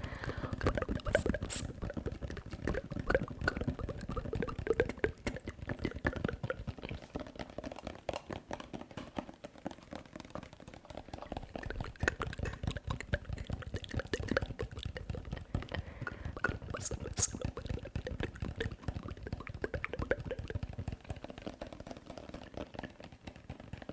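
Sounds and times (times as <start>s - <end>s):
wet mouth clicks and smacks: 0.2s - 7.0s, 11.3s - 20.6s.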